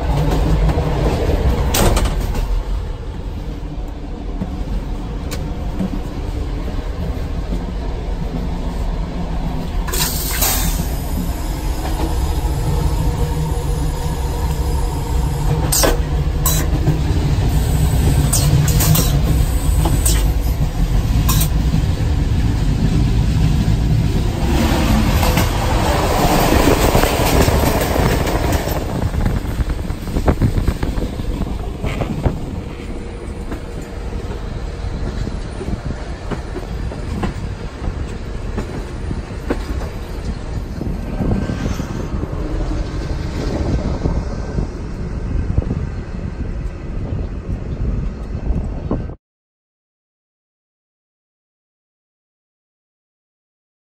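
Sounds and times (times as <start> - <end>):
clickety-clack over rail joints: 0.0 - 12.3, 15.4 - 45.8
train wheels rumbling on rails: 0.0 - 49.2.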